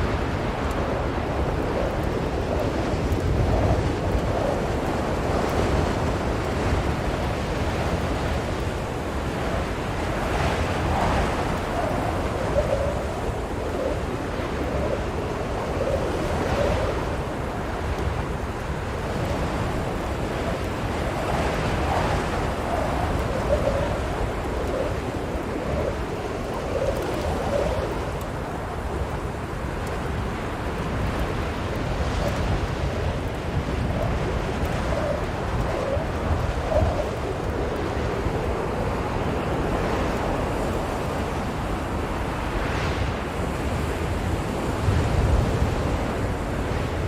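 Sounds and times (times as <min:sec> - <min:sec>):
blizzard wind blowing hard: 0:00.0 - 0:47.0.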